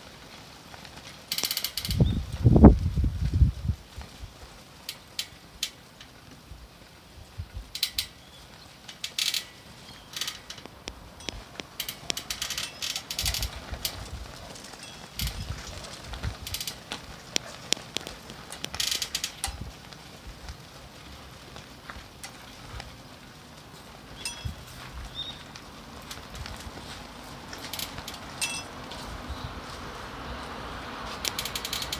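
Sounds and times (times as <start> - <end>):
low wind rumbles: 0.0 - 31.9
pole creaking and clicking: 1.3 - 2.7, 7.6 - 8.2, 8.8 - 19.9, 27.4 - 29.1, 31.2 - 31.9.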